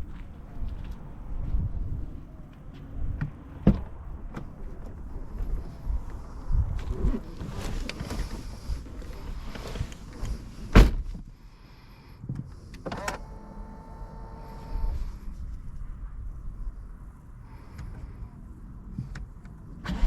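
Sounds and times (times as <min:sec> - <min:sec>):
power window motor whine: 0:12.9 - 0:15.0.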